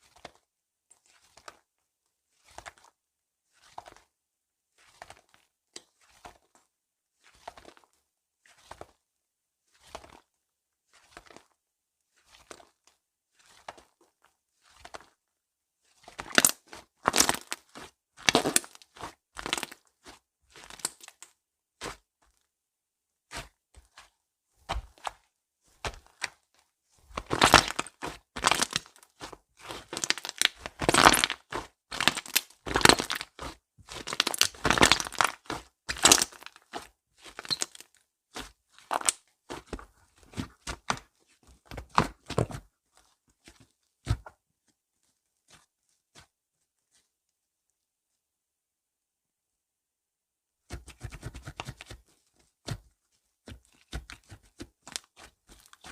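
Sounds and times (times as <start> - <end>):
slime crackling and popping: 16.2 - 19.8, 27.1 - 36.7, 37.3 - 37.9.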